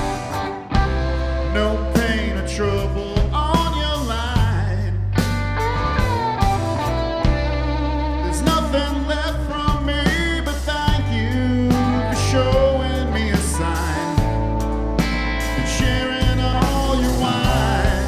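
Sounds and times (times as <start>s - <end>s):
drum hits: 0.0s - 1.3s, 3.2s - 7.6s, 14.2s - 18.0s
live rock band playing: 0.0s - 18.0s.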